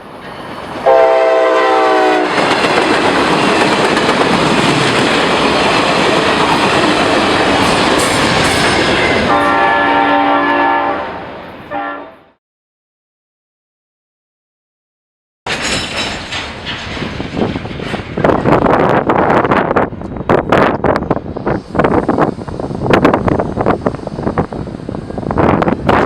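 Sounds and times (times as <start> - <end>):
train passing: 0.0 - 12.4, 15.5 - 26.0
train horn blasts: 0.8 - 2.5, 9.1 - 12.4.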